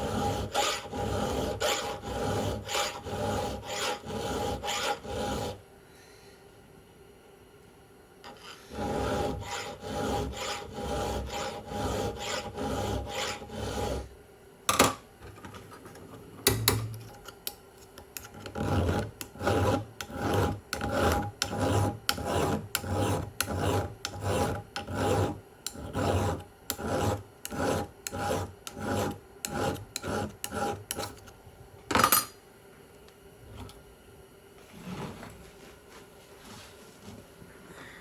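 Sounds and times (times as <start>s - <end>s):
file rasping on chain: 0.0s - 5.6s, 8.7s - 14.1s, 18.2s - 31.2s.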